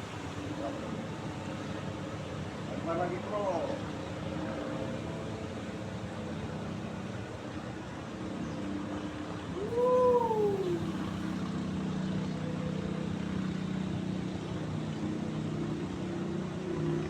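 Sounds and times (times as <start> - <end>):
engine humming: 9.4 - 13.9
wailing call rising and falling: 9.6 - 11.4.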